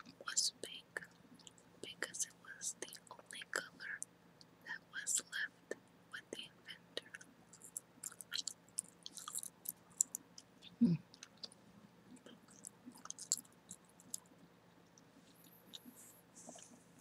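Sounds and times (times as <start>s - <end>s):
gum chewing mouth clicks: 7.6s - 10.5s, 12.2s - 14.3s.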